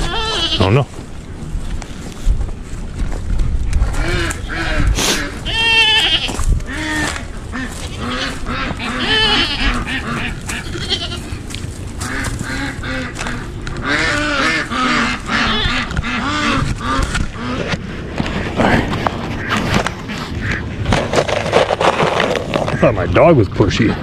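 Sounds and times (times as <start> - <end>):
goats bleating: 0.0 - 0.8, 4.0 - 17.0.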